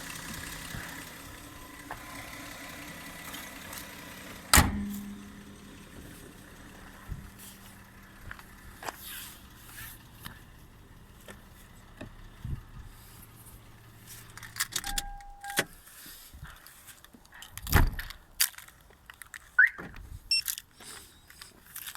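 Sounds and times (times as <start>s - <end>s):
clatter: 0.0s - 10.6s, 11.2s - 15.6s
car engine idling: 0.0s - 16.2s
loud thump: 4.6s - 5.4s
short steady beep: 14.8s - 15.7s, 19.6s - 20.5s.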